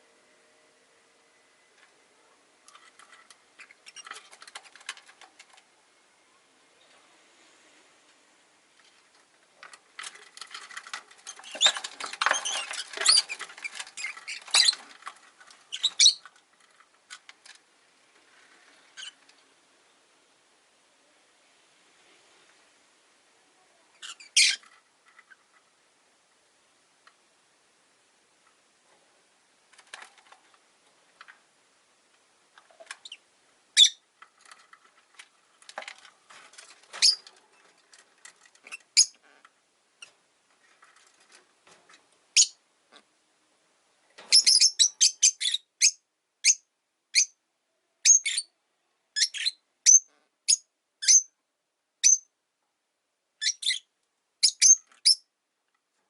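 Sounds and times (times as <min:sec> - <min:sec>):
lovebirds chirping: 0:11.2 - 0:16.3, 0:23.7 - 0:25.5, 0:33.8 - 0:34.1, 0:36.9 - 0:37.8, 0:42.4 - 0:42.6, 0:44.3 - 0:47.4, 0:49.2 - 0:51.3, 0:52.0 - 0:52.3, 0:53.4 - 0:55.3.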